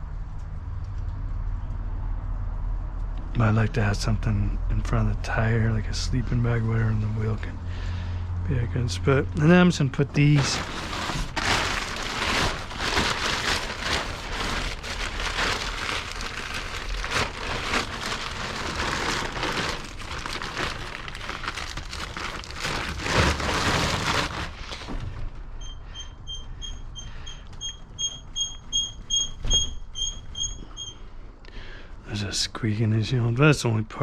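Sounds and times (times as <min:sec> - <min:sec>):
tie-down straps rustling and clattering: 0:10.2 - 0:25.2
rapid high squeak: 0:25.6 - 0:31.1.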